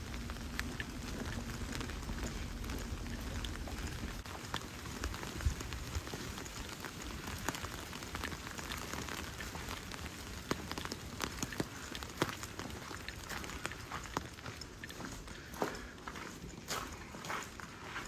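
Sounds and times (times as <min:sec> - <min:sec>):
low rumble: 0:00.0 - 0:06.1
rain falling: 0:00.0 - 0:16.6
raindrops ticking on a surface: 0:00.0 - 0:18.0.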